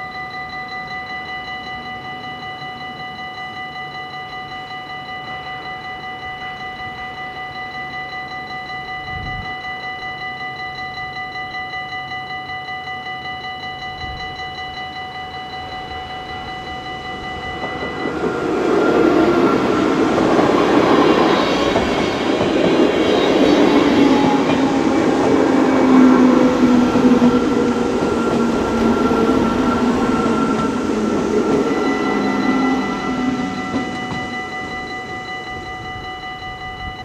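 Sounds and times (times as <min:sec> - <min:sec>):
electronic crossing warning bell: 0:00.0 - 0:37.0
train wheels rumbling on rails: 0:15.8 - 0:37.0.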